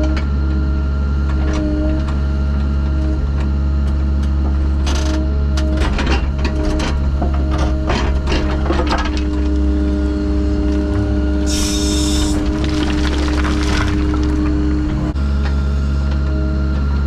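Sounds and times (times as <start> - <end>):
construction machine engine running: 5.4 - 17.0
short hiss: 11.5 - 12.4.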